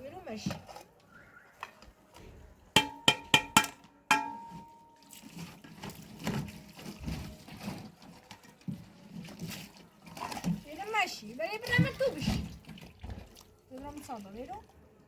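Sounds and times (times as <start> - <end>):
metal object clanking: 2.8 - 4.8
rustling and handling noise: 4.4 - 12.2.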